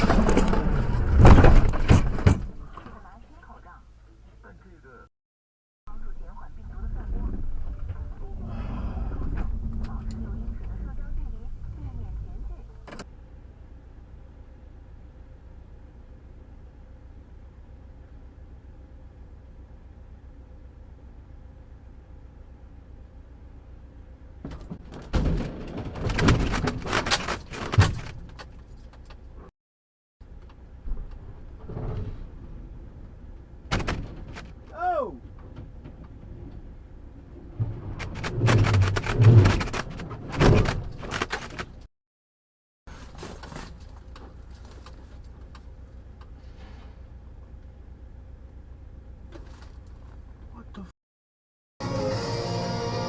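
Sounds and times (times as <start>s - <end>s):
clattering knocks and bangs: 0.0s - 3.1s, 24.4s - 29.2s, 30.3s - 41.9s
car road and engine rumble: 0.0s - 5.1s, 5.9s - 29.5s, 30.2s - 41.9s, 42.9s - 51.0s.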